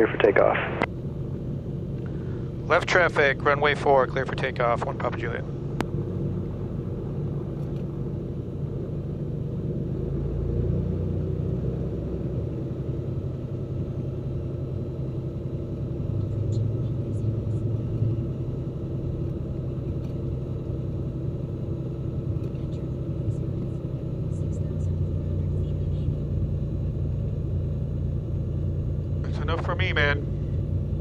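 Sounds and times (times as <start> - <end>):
propeller plane engine droning: 0.0 - 31.0.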